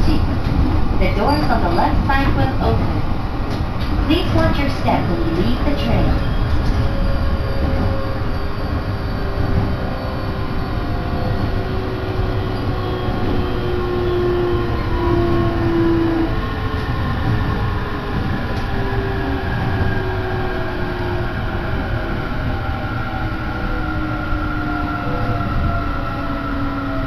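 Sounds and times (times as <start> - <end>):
train running rumble: 0.0 - 27.0.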